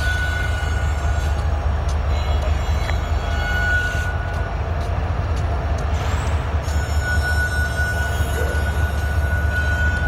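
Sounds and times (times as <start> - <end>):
train rolling past: 0.0 - 10.0
wheel squeal: 2.1 - 4.5, 5.9 - 10.0.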